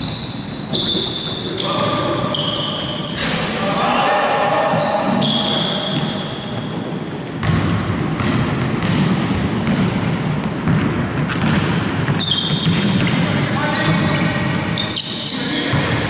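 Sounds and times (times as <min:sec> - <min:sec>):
basketball bouncing on court: 0:04.8 - 0:14.9, 0:15.6 - 0:16.0.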